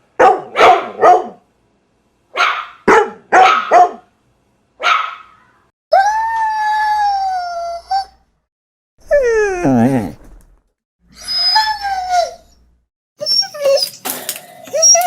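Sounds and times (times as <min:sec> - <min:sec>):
dog barking: 0:00.2 - 0:01.4, 0:02.3 - 0:04.1, 0:04.8 - 0:05.4.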